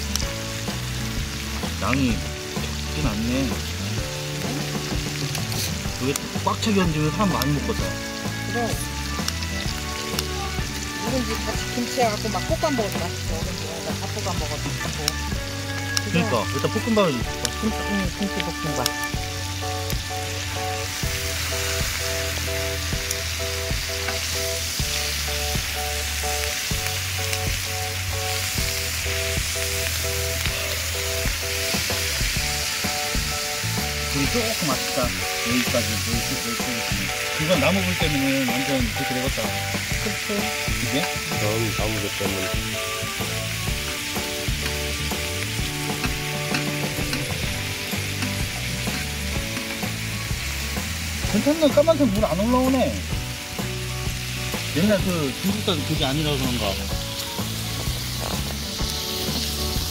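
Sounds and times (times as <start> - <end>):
meat sizzling on hot metal: 0.0 - 59.9
chopsticks stirring: 43.2 - 49.9.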